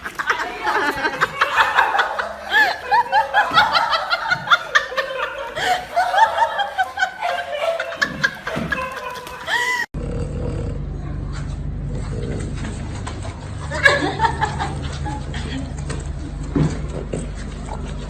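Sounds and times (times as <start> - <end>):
high-pitched laughter: 0.0 - 9.9
steady low hum: 10.0 - 18.0.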